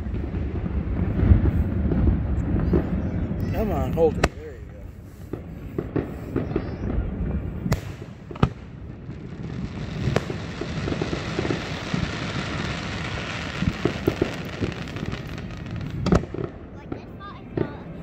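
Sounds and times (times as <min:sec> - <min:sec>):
firework shells bursting: 0:07.6 - 0:17.0
crackling hiss of falling sparks: 0:07.7 - 0:16.2.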